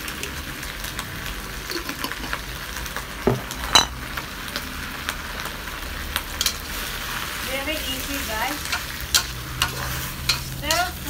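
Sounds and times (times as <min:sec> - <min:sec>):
lettuce sizzling in a wok: 0:00.0 - 0:11.0
stirring ticks and scrapes: 0:08.0 - 0:11.0.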